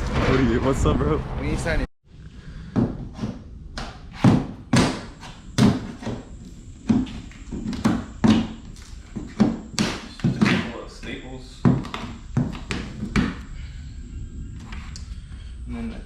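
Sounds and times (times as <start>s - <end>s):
thuds and knocks on wooden crate: 2.7s - 10.8s, 11.6s - 13.4s.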